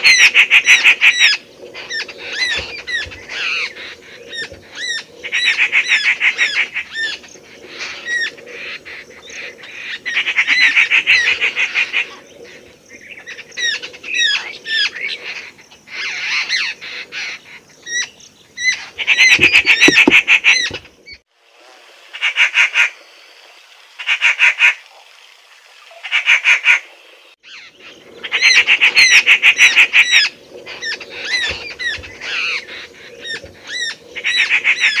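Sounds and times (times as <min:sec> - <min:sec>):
birds harsh chattering: 0:06.4 - 0:21.1.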